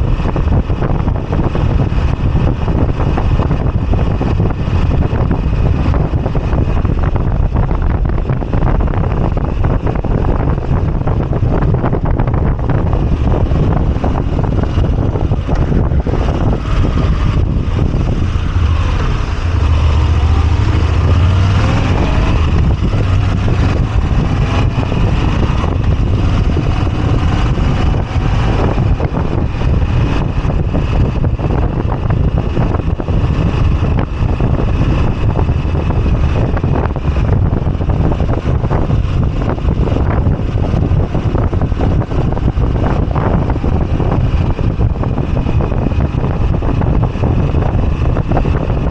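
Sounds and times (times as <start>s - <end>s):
motorcycle engine running: 0.0s - 48.9s
wind rumble on microphone: 0.0s - 48.9s.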